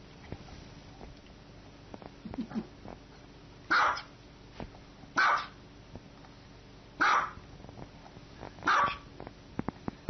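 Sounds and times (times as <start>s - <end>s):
small dog barking: 3.7s - 4.1s, 5.2s - 5.6s, 7.0s - 7.4s, 8.6s - 9.1s.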